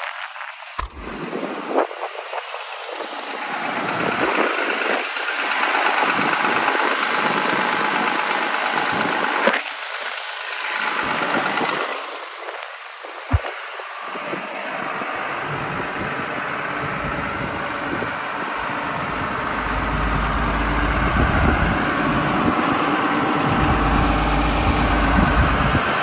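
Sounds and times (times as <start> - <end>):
excavator diesel engine running: 14.7 - 26.0.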